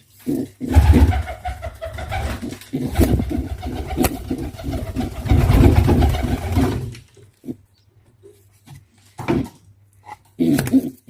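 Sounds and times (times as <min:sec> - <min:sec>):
pigeon calling: 0:00.2 - 0:06.7.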